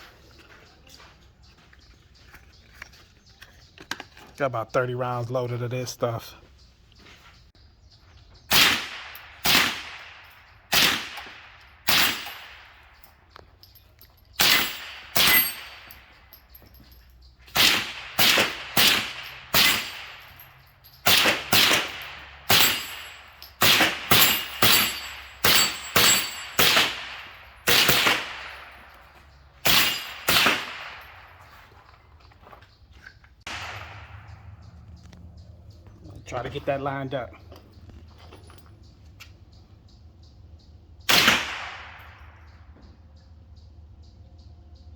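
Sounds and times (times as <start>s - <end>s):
suppressed rifle shots: 8.5s - 12.4s, 17.6s - 20.2s, 21.1s - 22.8s, 23.6s - 28.5s, 29.6s - 31.0s, 41.1s - 42.3s.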